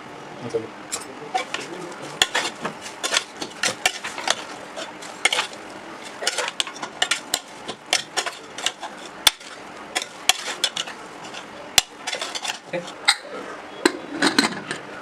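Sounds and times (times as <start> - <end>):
spoon stirring in cooking pot: 1.3 - 13.3.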